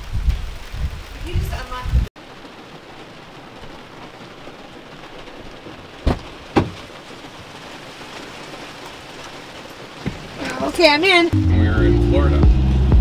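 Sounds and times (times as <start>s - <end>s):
heavy rain falling: 0.0s - 13.0s
sharp thumps: 6.0s - 6.9s.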